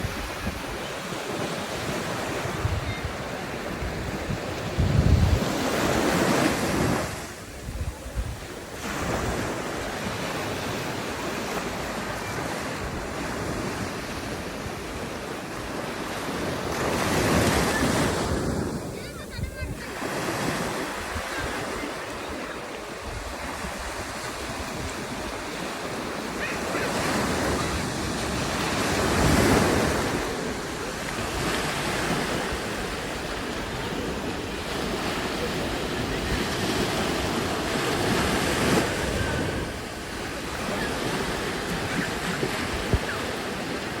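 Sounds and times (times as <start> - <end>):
ocean surf breaking on beach: 0.0 - 44.0
wind buffeting microphone: 2.4 - 6.1, 18.3 - 20.0.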